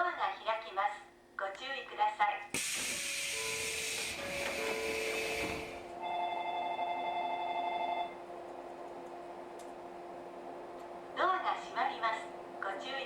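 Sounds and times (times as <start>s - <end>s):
compressed air hissing: 2.5s - 5.9s
train carriage low hum: 2.5s - 13.0s.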